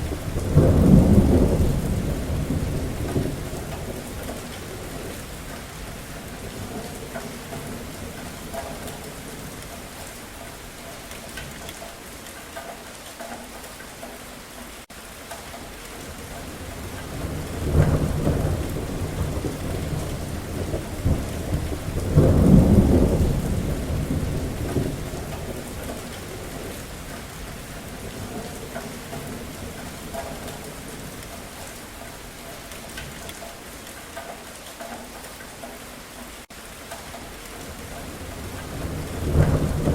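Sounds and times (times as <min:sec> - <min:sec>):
thunder rolling: 0:00.0 - 0:09.6, 0:16.1 - 0:31.2, 0:37.6 - 0:39.9
steady rain falling: 0:00.0 - 0:39.9.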